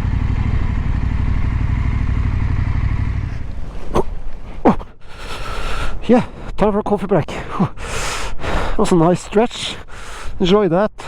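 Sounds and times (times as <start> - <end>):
motorcycle engine running: 0.0 - 3.7.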